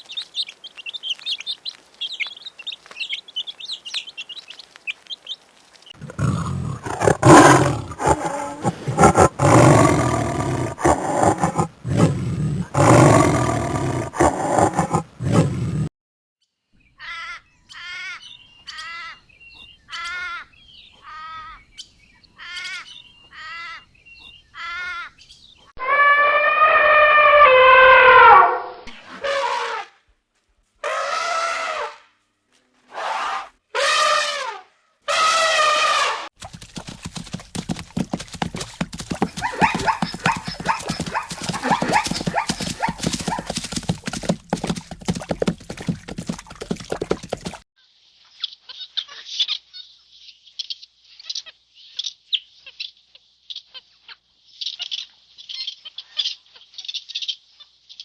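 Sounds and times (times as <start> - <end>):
crackling patter: 4.5 - 15.5, 36.4 - 47.6
animal yelping and calling: 6.0 - 15.8, 36.5 - 47.6.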